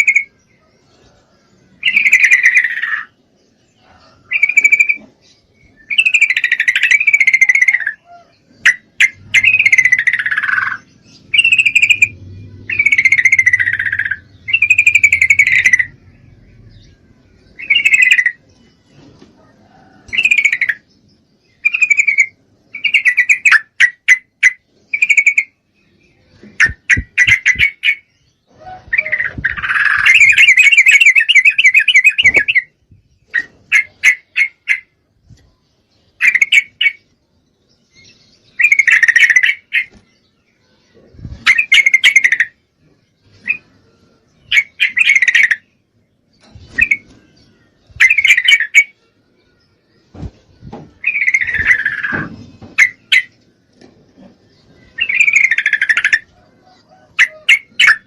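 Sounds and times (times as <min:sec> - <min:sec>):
bird rapid trill: 0:01.8 - 0:03.2, 0:03.9 - 0:18.5, 0:20.1 - 0:20.9, 0:26.5 - 0:35.0, 0:38.5 - 0:40.0, 0:41.2 - 0:42.6, 0:44.4 - 0:45.8, 0:46.4 - 0:49.0, 0:50.2 - 0:53.4, 0:54.7 - 0:56.3
bulbul chattering chirps: 0:04.0 - 0:18.8, 0:20.0 - 0:25.7, 0:26.4 - 0:35.0, 0:40.9 - 0:42.6, 0:44.3 - 0:49.0, 0:49.6 - 0:58.0.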